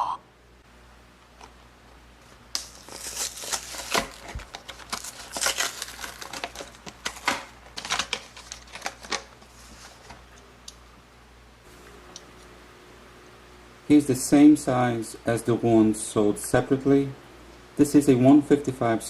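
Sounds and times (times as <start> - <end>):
plastic packaging crinkling: 2.5 - 10.3.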